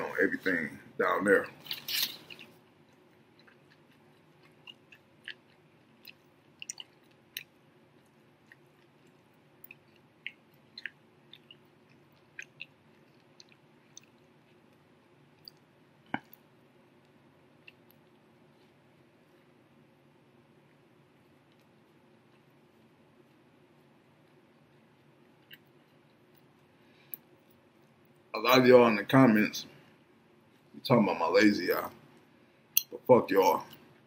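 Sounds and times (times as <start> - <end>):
mouth clicks and smacks: 1.5 - 19.1, 20.7 - 28.3
faint chewing: 1.5 - 28.3.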